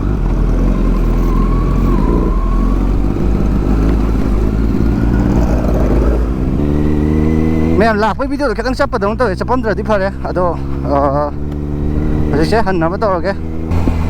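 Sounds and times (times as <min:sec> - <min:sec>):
wind rumble on microphone: 0:00.0 - 0:07.8, 0:13.4 - 0:14.0
motorcycle engine running: 0:00.0 - 0:14.0.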